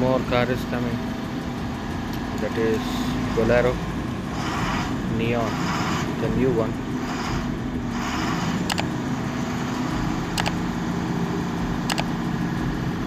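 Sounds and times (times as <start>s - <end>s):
vehicle engine running: 0.0s - 13.0s
sharp clicks: 8.2s - 9.0s, 10.2s - 10.8s, 11.8s - 12.3s.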